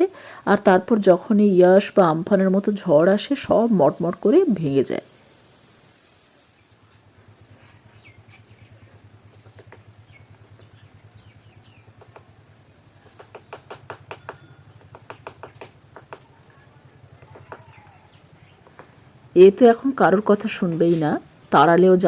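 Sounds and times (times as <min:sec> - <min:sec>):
woodpecker pecking wood: 0:09.2 - 0:10.8, 0:11.6 - 0:19.3.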